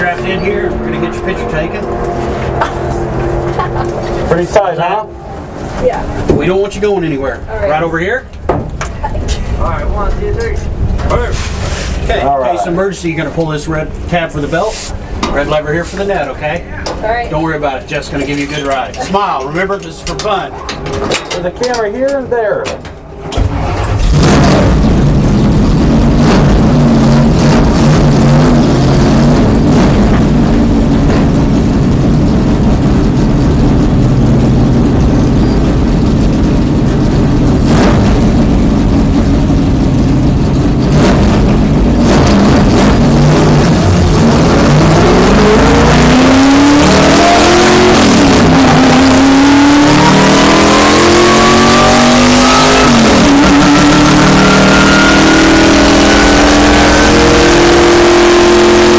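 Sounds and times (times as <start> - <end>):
race car engine accelerating: 0.0 - 8.0, 23.2 - 58.9.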